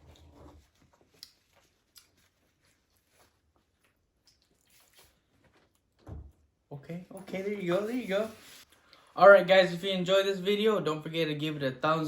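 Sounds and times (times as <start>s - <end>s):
faint chewing: 0.0s - 6.0s.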